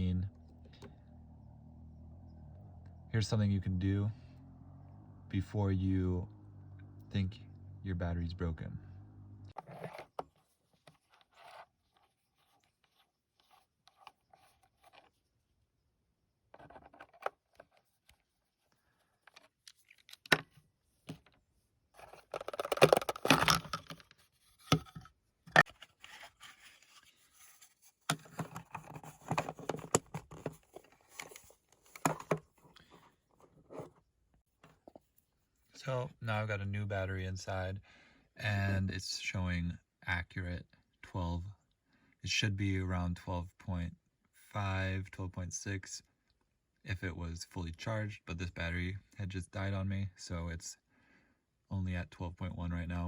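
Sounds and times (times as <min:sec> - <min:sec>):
scraping and rustling: 0:09.5 - 0:15.2, 0:21.0 - 0:35.3
plastic clicks: 0:22.0 - 0:24.1.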